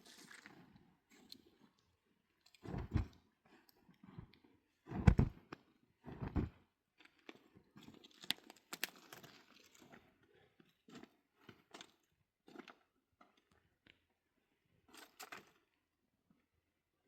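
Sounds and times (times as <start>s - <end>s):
crunching and rustling: 0.0s - 1.3s.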